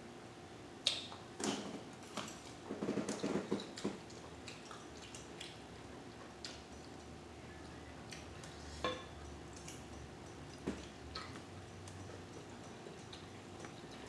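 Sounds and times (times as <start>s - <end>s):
person chewing: 3.2s - 14.0s.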